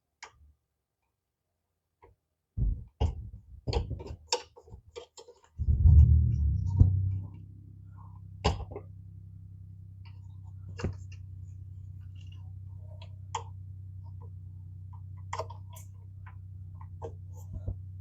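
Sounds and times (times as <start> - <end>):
steady low hum: 5.6 - 18.0.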